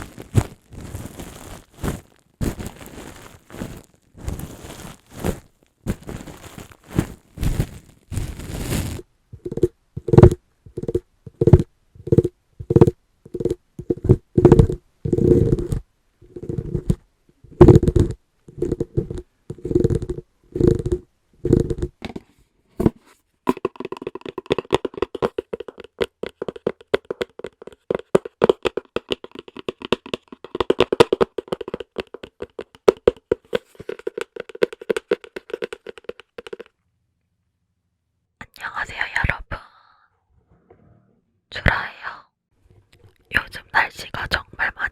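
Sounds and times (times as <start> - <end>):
fingers tapping hollow object: 9.4 - 16.9, 17.5 - 22.0, 23.5 - 36.7.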